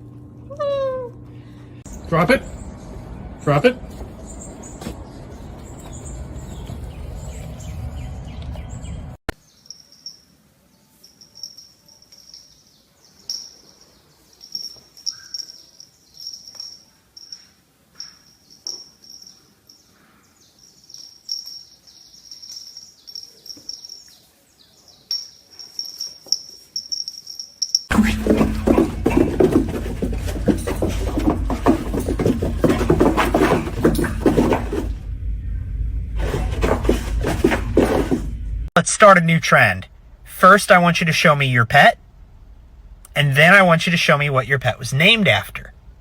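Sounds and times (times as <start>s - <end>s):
high thin chirping calls: 5.6s - 27.8s
loud steady low noise: 34.0s - 45.7s.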